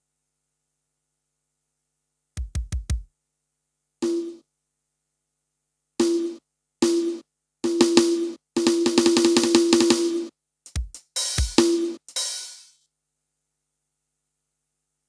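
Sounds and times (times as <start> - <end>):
drum stabs with held note: 2.4 - 3.0, 4.0 - 4.4, 6.0 - 12.7
kick drum hits: 2.4 - 3.1, 10.7 - 11.7.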